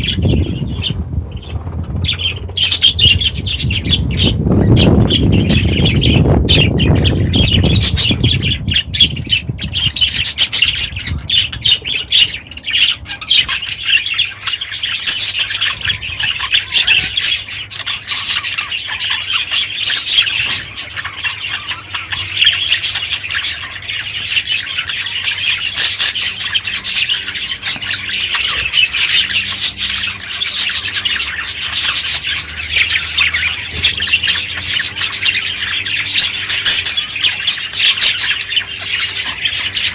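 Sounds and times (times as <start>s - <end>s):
low rumble: 0.0s - 13.8s
budgerigars chattering: 0.0s - 39.9s.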